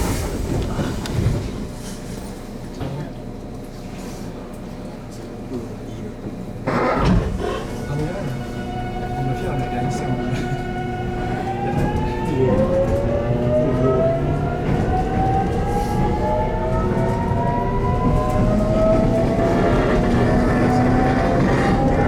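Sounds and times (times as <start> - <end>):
electric train motor whine: 6.6 - 22.0.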